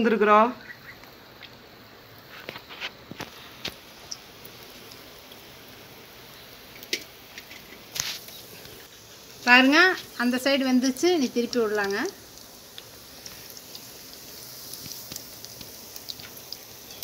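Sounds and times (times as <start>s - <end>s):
fritters deep-frying in oil: 0.0s - 17.0s
oil popping and crackling: 0.8s - 17.0s.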